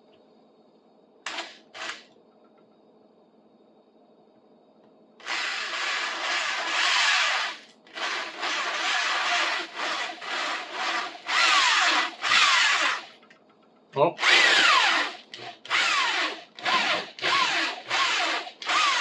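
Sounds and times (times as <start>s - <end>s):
electric drill boring into wood: 5.2s - 13.1s, 14.2s - 19.0s.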